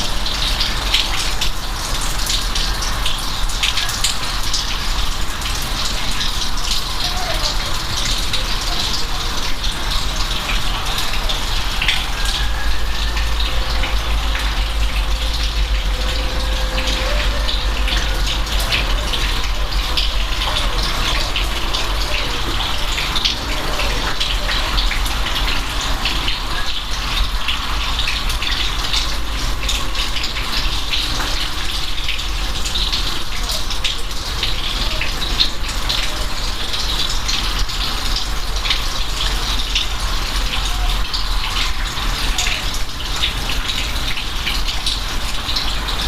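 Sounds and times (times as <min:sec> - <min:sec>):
heavy rain hissing: 0:00.0 - 0:46.0
raindrops splashing on surface: 0:00.0 - 0:46.0.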